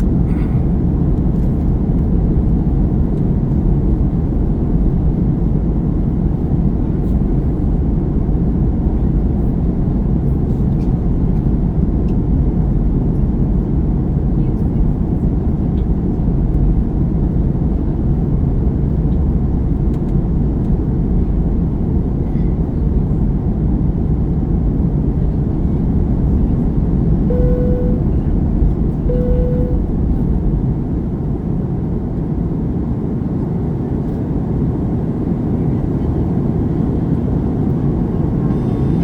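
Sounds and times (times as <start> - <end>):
airliner cabin roar: 27.2 - 30.6
short tones: 27.3 - 28.2, 29.1 - 29.9.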